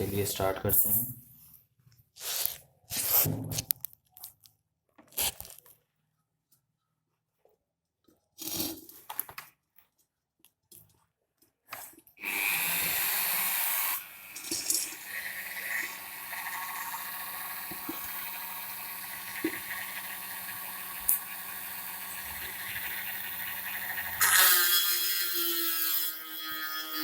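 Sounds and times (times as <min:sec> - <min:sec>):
scrapes and clicks: 0:02.2 - 0:05.8
rotary tool whining: 0:12.2 - 0:27.0
rotary tool grinding clay pot: 0:12.3 - 0:27.0.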